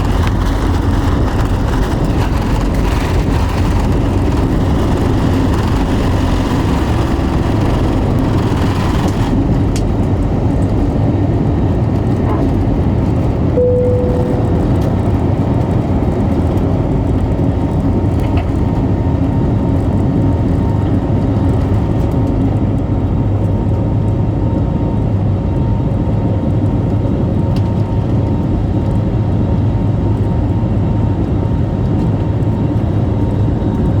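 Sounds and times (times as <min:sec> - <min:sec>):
jet engines at takeoff power: 0:00.0 - 0:34.0
short single tone: 0:13.6 - 0:15.1.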